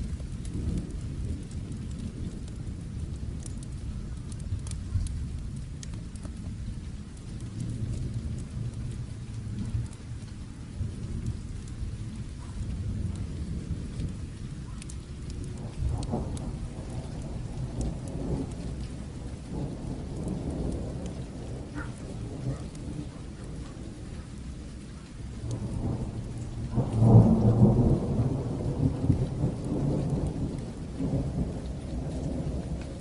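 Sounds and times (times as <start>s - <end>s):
distant thunder rumbling: 0.0s - 33.0s
sharp crackles: 0.0s - 33.0s
steady rain: 0.0s - 33.0s.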